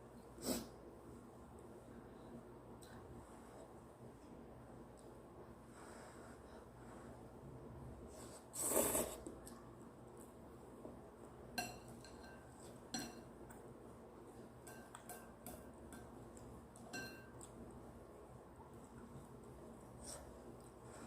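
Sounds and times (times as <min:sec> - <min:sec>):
utensils clinking against a bowl: 0:11.6 - 0:13.3, 0:14.6 - 0:16.1, 0:16.8 - 0:17.5.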